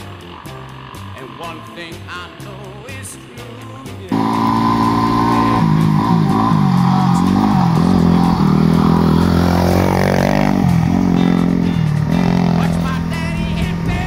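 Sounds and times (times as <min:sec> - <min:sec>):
motorcycle engine revving: 0:04.1 - 0:14.0.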